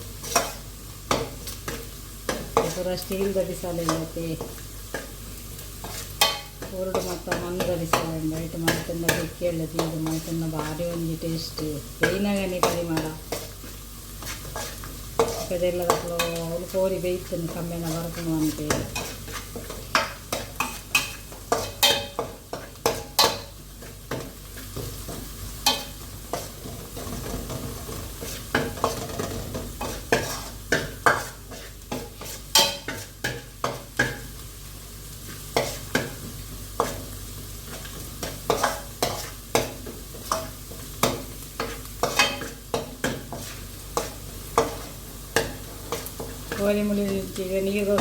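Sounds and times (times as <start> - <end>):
food sizzling in a pot: 0.0 - 48.0
spoon scraping and knocking pot: 14.2 - 16.4, 17.4 - 34.2.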